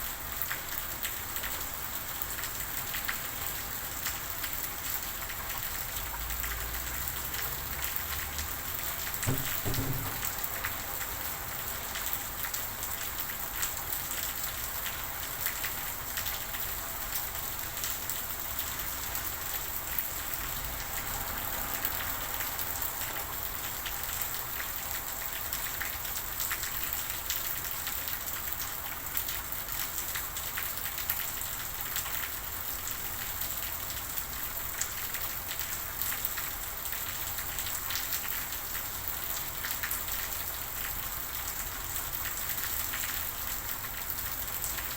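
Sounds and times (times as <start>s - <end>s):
steady rain falling: 0.0s - 44.9s
droplet taps: 9.3s - 10.5s.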